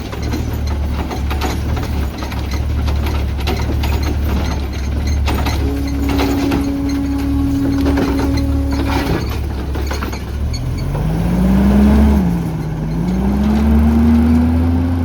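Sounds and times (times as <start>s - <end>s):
truck engine accelerating: 0.0s - 15.0s
steady whine: 5.0s - 10.2s.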